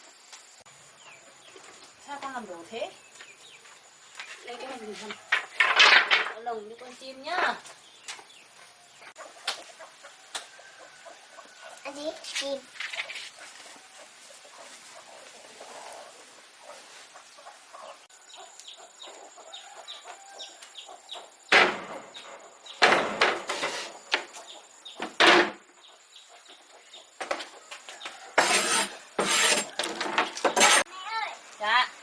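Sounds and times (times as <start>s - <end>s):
rustling clatters: 5.0s - 6.4s, 28.4s - 30.9s
small birds cheeping: 6.7s - 23.2s, 23.9s - 28.4s
loud knocks: 21.5s - 23.6s.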